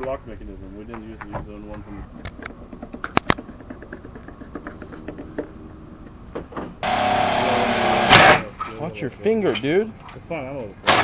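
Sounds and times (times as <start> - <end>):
power drill boring into metal: 6.8 - 8.4.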